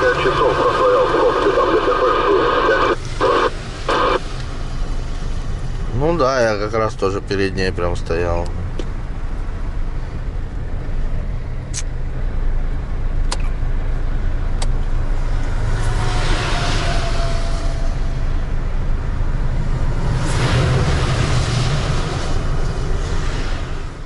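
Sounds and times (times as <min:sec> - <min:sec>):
van engine and road noise: 0:00.0 - 0:24.0
sharp clicks: 0:11.7 - 0:11.9, 0:13.2 - 0:13.6.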